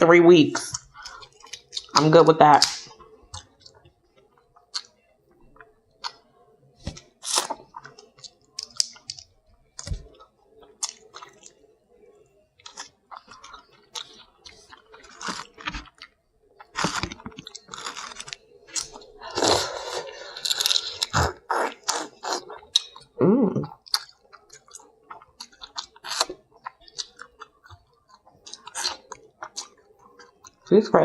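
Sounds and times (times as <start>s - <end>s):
chewing and crunching: 0.6s - 30.8s.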